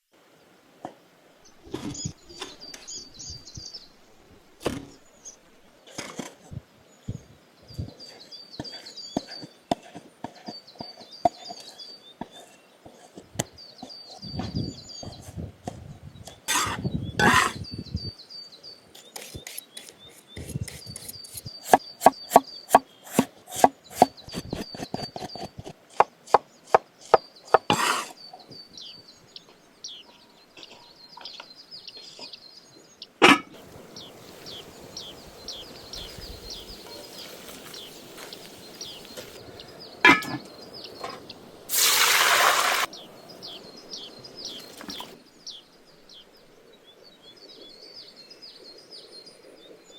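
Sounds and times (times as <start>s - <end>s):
birds singing: 1.4s - 49.9s
loud hiss: 41.7s - 43.1s.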